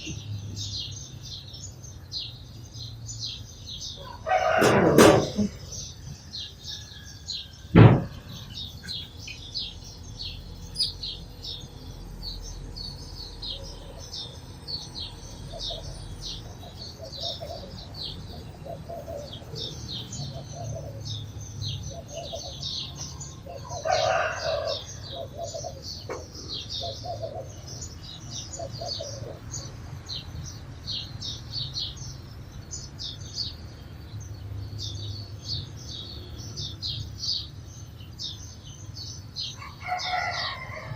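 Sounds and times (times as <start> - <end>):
sparrows chirping: 0.0 - 40.9
sharp knock: 4.6 - 5.6, 7.8 - 8.4.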